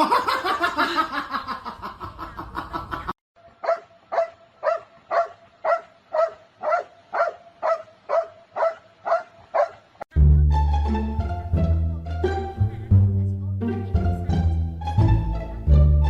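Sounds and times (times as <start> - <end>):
dog barking: 3.6 - 9.8.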